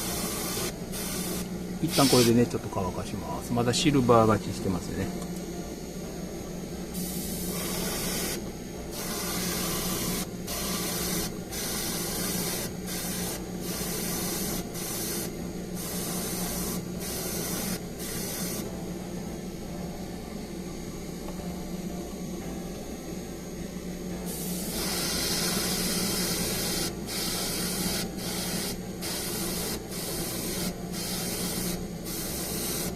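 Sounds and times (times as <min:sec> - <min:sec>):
airbrush hissing: 0:00.0 - 0:02.6, 0:06.9 - 0:18.7, 0:24.2 - 0:32.9
steady low hum: 0:00.0 - 0:32.9.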